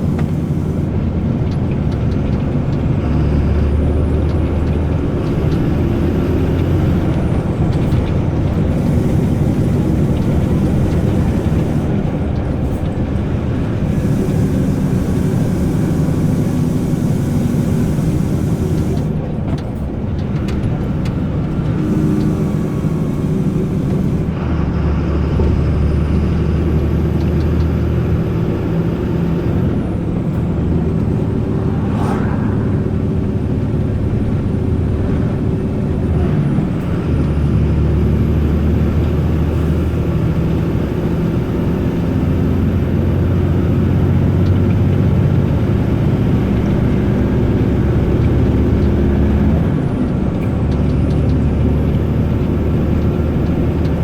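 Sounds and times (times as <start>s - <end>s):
truck diesel engine pulling: 0.0s - 54.0s
high turbo whistle: 30.6s - 34.5s.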